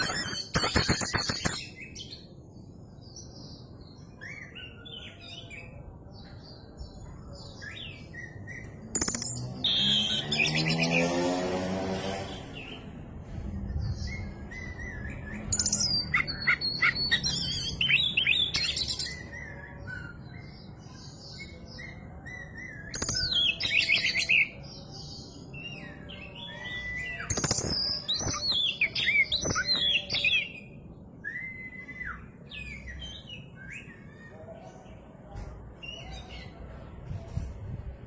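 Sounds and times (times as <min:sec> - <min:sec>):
songbird whistling and trilling: 0:00.0 - 0:02.3, 0:07.2 - 0:11.0, 0:13.8 - 0:24.6, 0:25.5 - 0:34.2.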